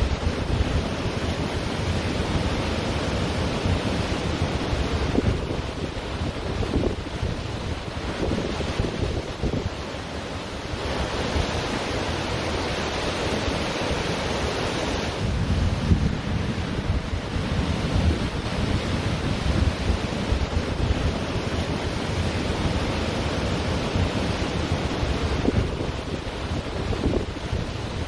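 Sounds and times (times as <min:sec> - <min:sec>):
wind buffeting microphone: 0:00.0 - 0:09.8, 0:15.0 - 0:28.0
ocean surf washing on beach: 0:00.0 - 0:28.0.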